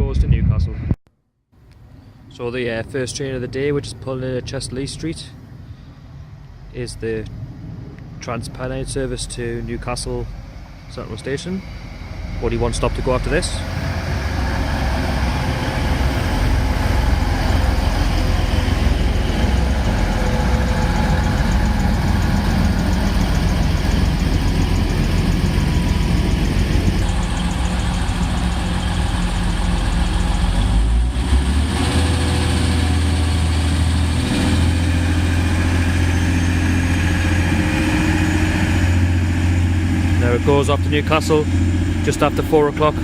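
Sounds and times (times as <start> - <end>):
diesel train engines running: 1.6 - 43.0
faint rising whine: 1.6 - 43.0.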